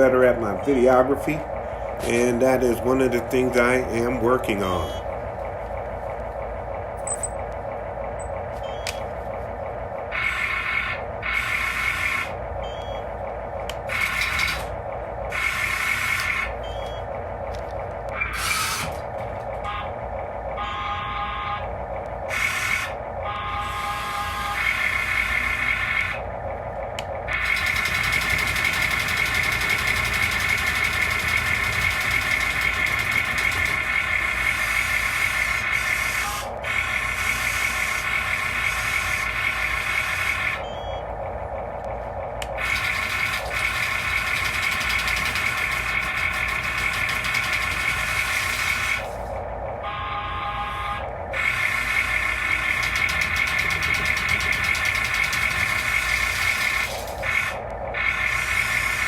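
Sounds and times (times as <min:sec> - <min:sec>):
high-pitched mechanical whine: 0:00.0 - 0:59.0
fast mechanical rattle: 0:00.9 - 0:16.6, 0:17.2 - 0:19.6, 0:24.6 - 0:40.6, 0:41.3 - 0:49.7, 0:51.1 - 0:59.0
fast even pulsing: 0:51.1 - 0:59.0.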